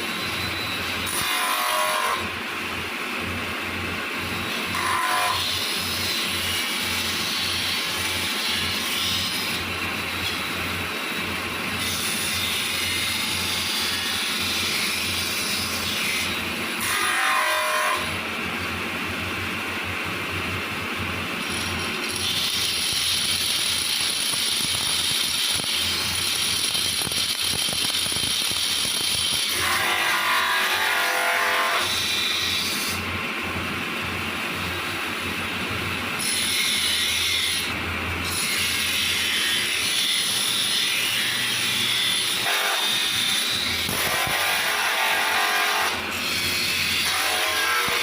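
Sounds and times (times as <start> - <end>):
power tool motor humming: 21.4 - 32.4, 42.0 - 46.1.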